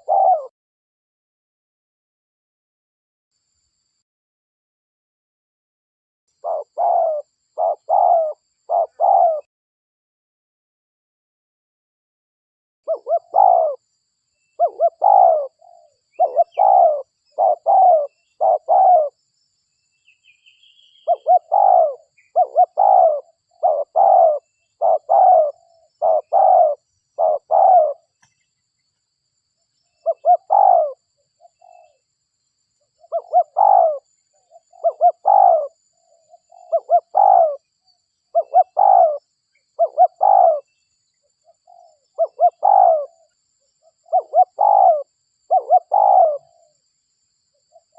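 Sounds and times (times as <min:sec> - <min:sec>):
dove cooing: 0:00.0 - 0:00.5, 0:06.4 - 0:09.5, 0:12.9 - 0:13.8, 0:14.6 - 0:19.2, 0:20.9 - 0:28.2, 0:30.0 - 0:32.0, 0:33.0 - 0:37.7, 0:38.3 - 0:39.2, 0:39.8 - 0:40.7, 0:41.5 - 0:46.7.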